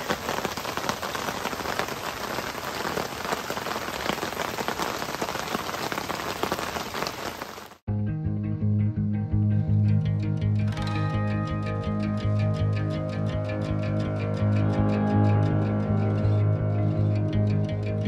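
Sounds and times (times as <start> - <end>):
rain pattering: 0.0 - 7.8
background music with bass: 7.9 - 18.0.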